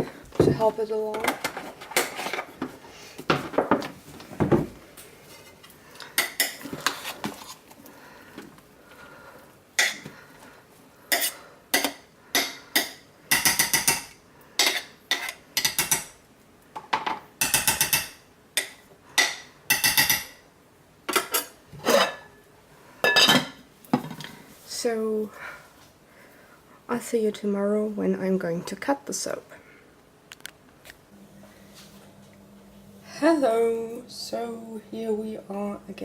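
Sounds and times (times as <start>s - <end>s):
spoon stirring and scraping a pot: 5.2s - 7.9s, 11.1s - 16.1s.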